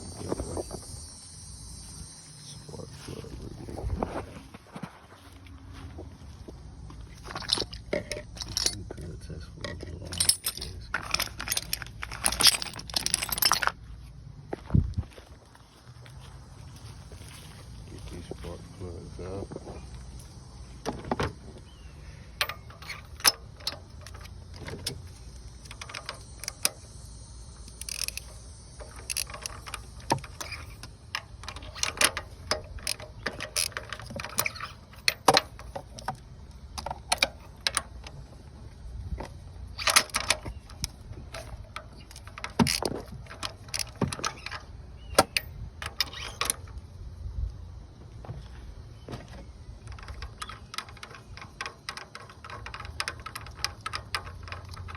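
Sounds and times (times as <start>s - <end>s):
steady low rumble: 0.0s - 34.1s
metal hand tools clinking: 7.3s - 8.9s, 9.6s - 13.8s, 22.4s - 25.0s, 27.6s - 36.0s.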